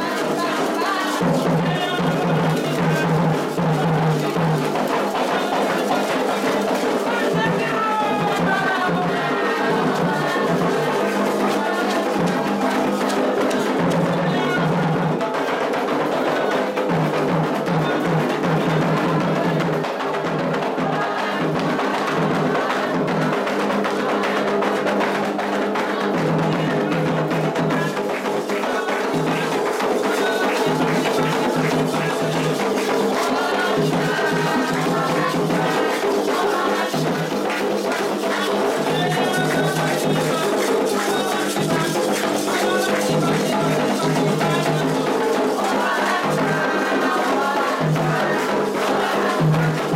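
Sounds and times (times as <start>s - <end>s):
hand drums in fast rhythm: 0.0s - 49.9s.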